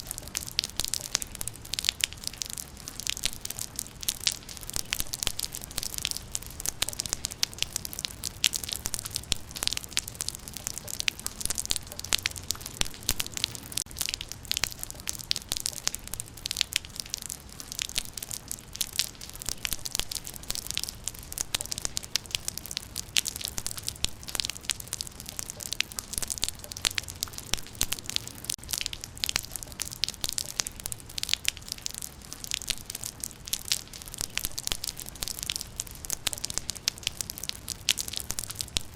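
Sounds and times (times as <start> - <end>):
rain patter: 0.0 - 38.9.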